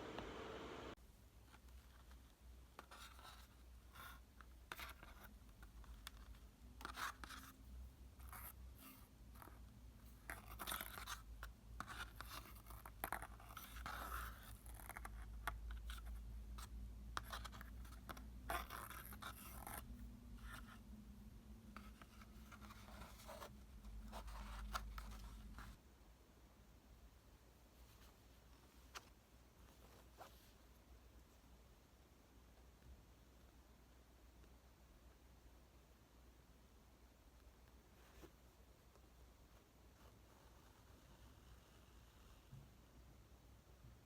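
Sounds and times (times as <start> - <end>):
low steady hum: 0.0 - 1.4.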